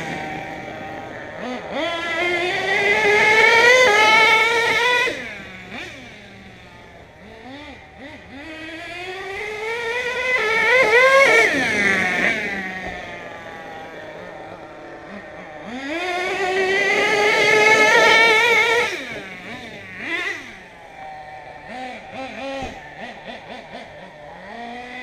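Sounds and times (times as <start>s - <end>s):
model truck engine revving: 0.0s - 25.0s.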